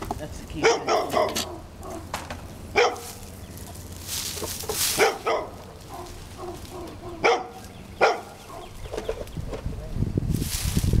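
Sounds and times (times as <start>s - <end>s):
dog barking: 0.6s - 2.1s, 2.7s - 3.2s, 4.9s - 8.8s.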